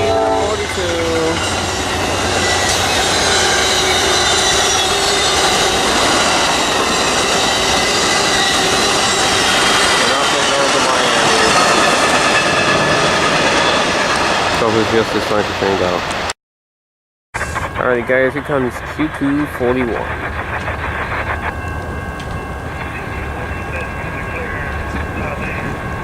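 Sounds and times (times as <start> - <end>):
high-pitched wheel squeal: 0.0 - 14.4
train wheels on rails: 0.0 - 16.2, 17.4 - 26.0.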